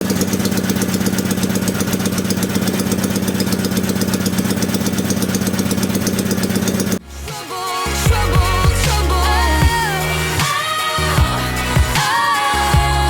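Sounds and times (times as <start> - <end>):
small engine running: 0.0 - 7.0.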